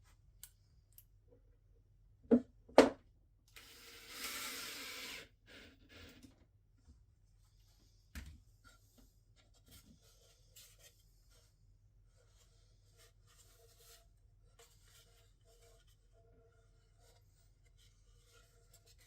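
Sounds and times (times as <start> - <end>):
faint scratching and rubbing: 8.6 - 19.0.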